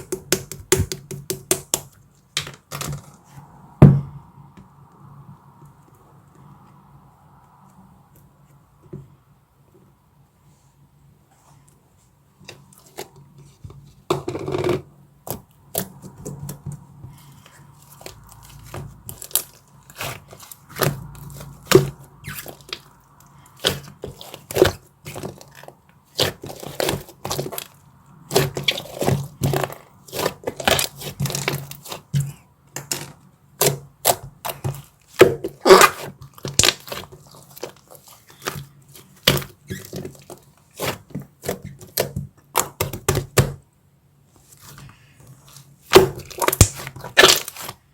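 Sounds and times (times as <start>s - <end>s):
chocolate and wrapper crackling: 34.4s - 40.4s, 46.0s - 47.8s.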